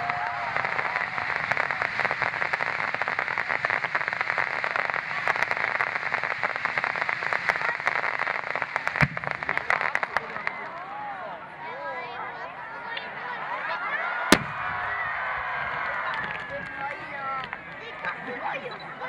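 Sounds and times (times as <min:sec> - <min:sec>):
firework crackling: 0:00.0 - 0:11.0, 0:14.3 - 0:18.8
firework bang: 0:05.8 - 0:10.6, 0:14.3 - 0:16.8.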